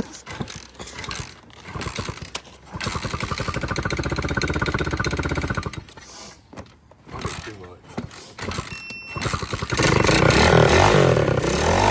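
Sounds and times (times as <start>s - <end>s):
dirt bike engine running: 0.2s - 5.9s, 8.1s - 11.9s.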